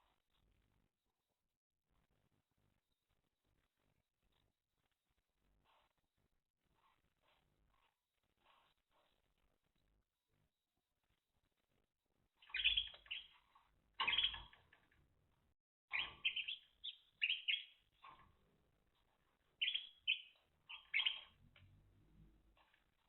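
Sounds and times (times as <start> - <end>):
canaries chirping: 12.4 - 14.8, 15.9 - 18.4, 19.2 - 21.6.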